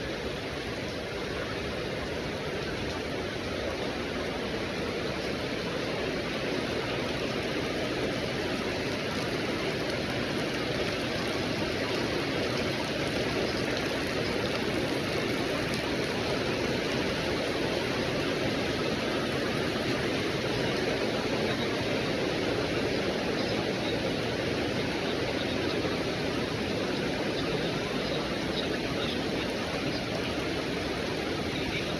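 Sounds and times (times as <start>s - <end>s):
rain falling: 0.0s - 31.9s.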